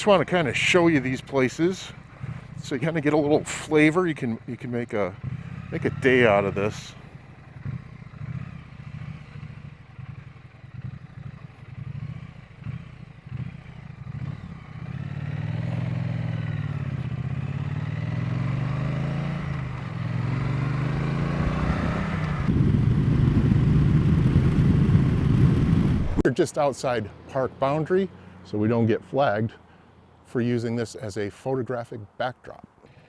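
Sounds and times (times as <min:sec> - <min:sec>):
motorcycle engine revving: 0:00.0 - 0:26.3.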